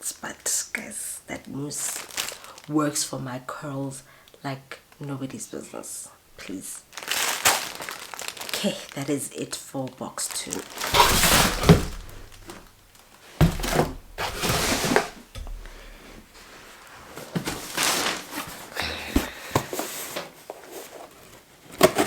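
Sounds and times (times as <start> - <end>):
cardboard scraping and rustling: 10.6 - 22.0
cardboard box thunk: 10.8 - 12.8, 13.4 - 16.5.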